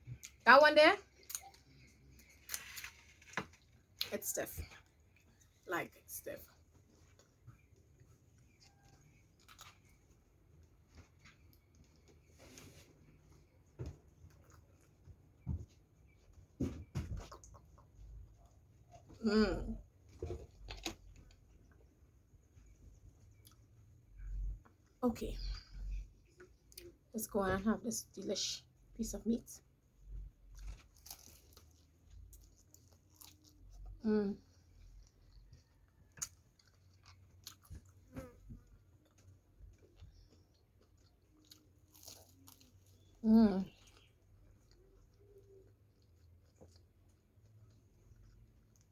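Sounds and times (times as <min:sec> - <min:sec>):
person chewing: 0:08.0 - 0:10.1, 0:30.5 - 0:33.8, 0:34.5 - 0:48.9.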